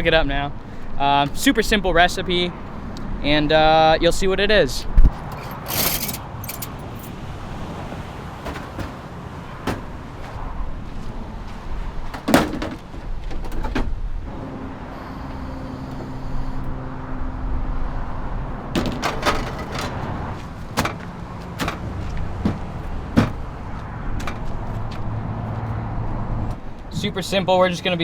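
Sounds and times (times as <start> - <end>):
road traffic rumbling: 0.0 - 28.0
gear knocking and clunking: 5.0 - 7.0, 8.3 - 10.4, 18.7 - 25.0.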